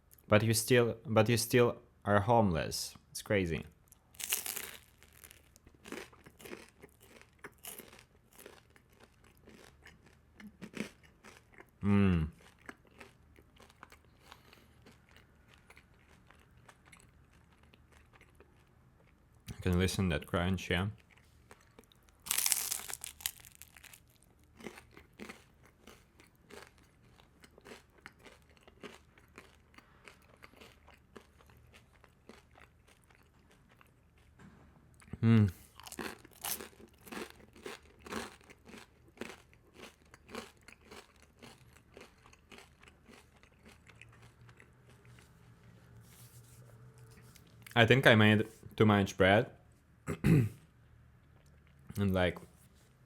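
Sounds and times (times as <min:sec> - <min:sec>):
crunchy chewing: 0:03.9 - 0:19.2, 0:21.0 - 0:34.3, 0:35.7 - 0:47.8
crisp bite into toast: 0:04.2 - 0:08.6, 0:22.3 - 0:25.4.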